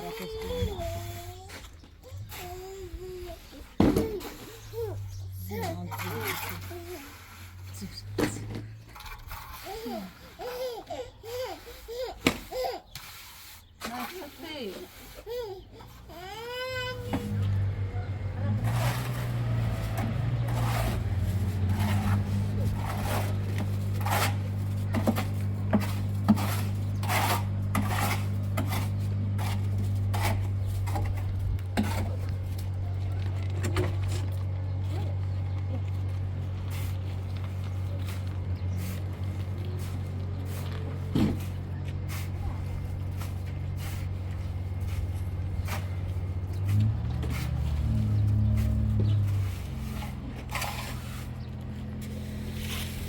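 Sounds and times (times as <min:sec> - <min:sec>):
metallic scraping and clinking: 0:05.5 - 0:10.2
motor humming: 0:15.9 - 0:53.0.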